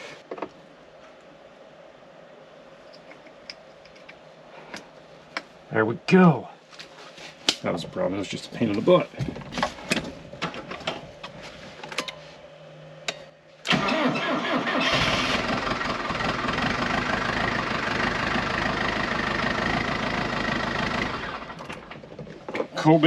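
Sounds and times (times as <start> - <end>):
tractor engine running: 13.7 - 22.4.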